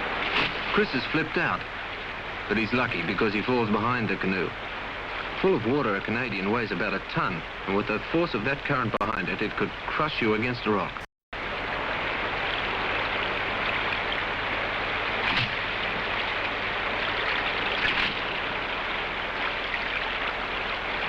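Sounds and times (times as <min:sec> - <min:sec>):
faint water splashes: 0:00.0 - 0:21.0
river rapid rushing: 0:11.4 - 0:21.0.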